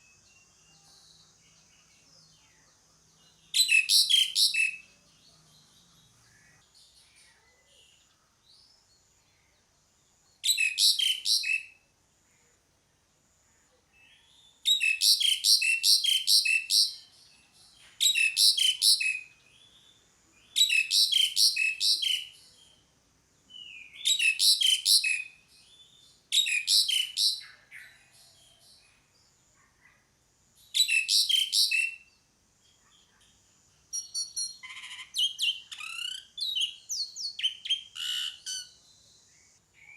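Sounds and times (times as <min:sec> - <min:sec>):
starling calling rapid high notes: 0:34.0 - 0:36.5.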